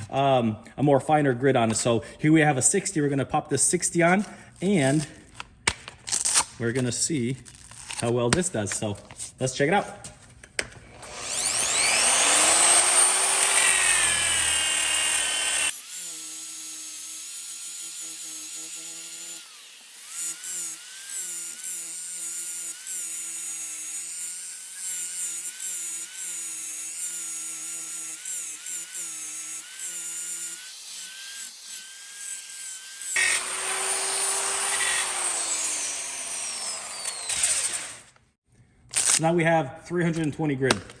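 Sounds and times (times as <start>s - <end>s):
angle grinder sanding metal: 11.1s - 38.1s.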